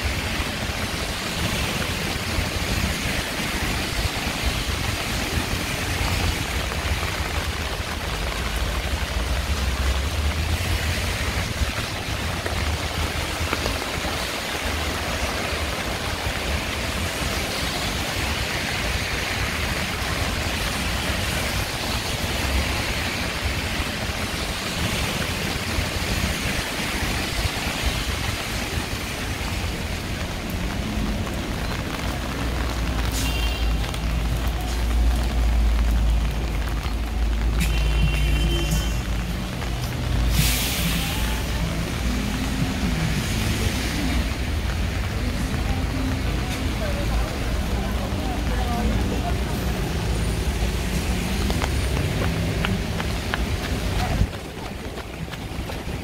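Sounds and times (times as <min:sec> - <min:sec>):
heavy rain: 0:00.0 - 0:56.0
low traffic rumble: 0:00.0 - 0:56.0.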